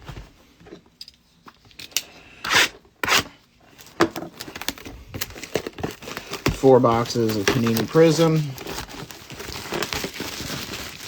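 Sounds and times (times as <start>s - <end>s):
rustling scrapes: 5.3s - 11.0s
cardboard rubbing and scraping: 5.4s - 11.0s.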